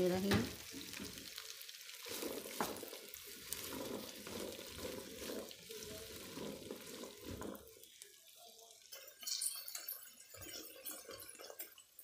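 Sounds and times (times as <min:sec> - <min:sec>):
okra sizzling in oil: 0:00.0 - 0:12.0
spatula scraping pot: 0:01.9 - 0:07.9.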